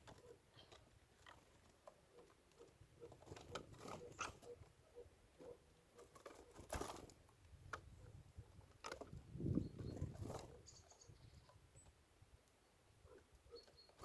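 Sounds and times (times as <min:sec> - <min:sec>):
small animal clicking and scratching: 0:00.0 - 0:04.8, 0:05.9 - 0:10.6.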